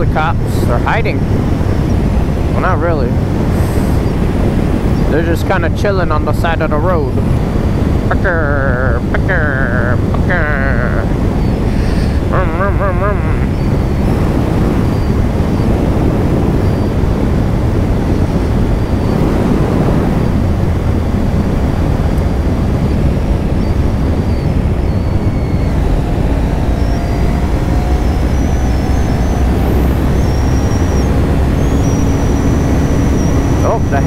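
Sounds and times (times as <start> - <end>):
wind on microphone: 0.0 - 34.0.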